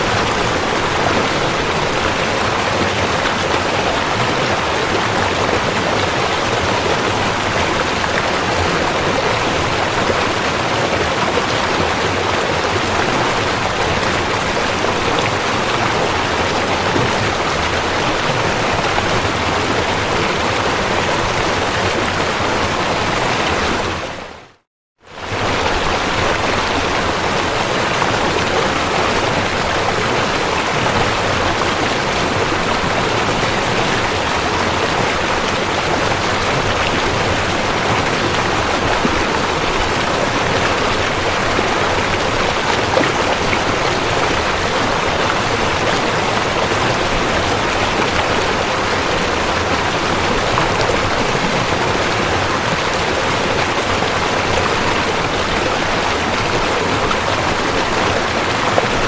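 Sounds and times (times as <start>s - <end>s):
river rushing over rocks: 0.0s - 24.3s, 25.1s - 59.0s.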